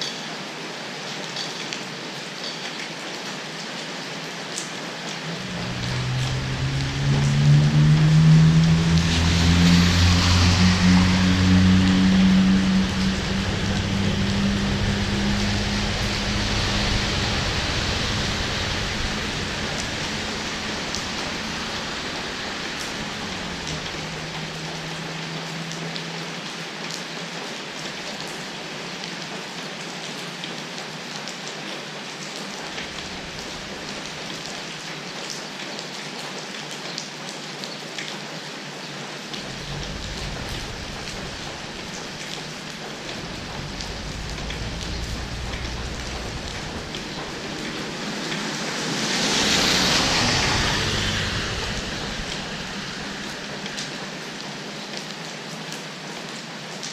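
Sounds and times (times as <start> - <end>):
rain drops ticking: 0.9 - 56.9
vehicle engine hum: 5.2 - 28.5, 32.6 - 34.8, 39.3 - 55.0.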